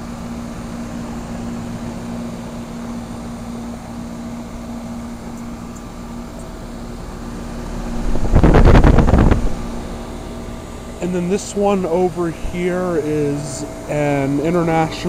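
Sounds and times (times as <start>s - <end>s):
heat pump humming: 0.0s - 15.0s
burst of rushing noise: 8.0s - 9.9s.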